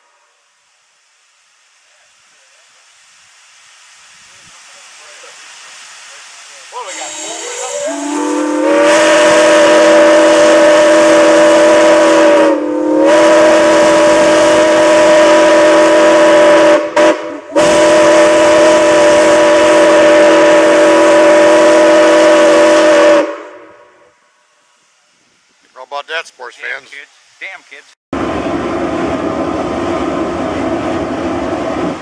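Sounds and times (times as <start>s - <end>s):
steam locomotive whistle: 6.8s - 24.2s.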